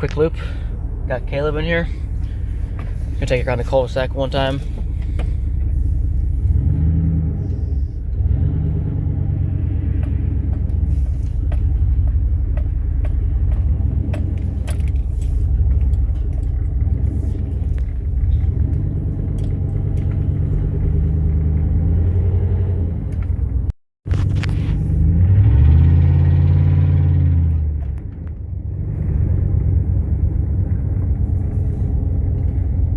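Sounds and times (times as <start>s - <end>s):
pickup truck engine driving: 0.0s - 32.9s
rattling and jingling clicks: 10.0s - 20.8s.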